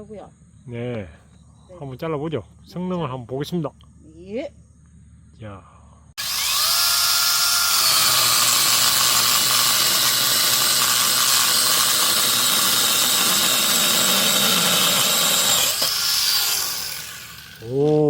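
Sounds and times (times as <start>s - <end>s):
chainsaw cutting wood: 6.2s - 17.9s.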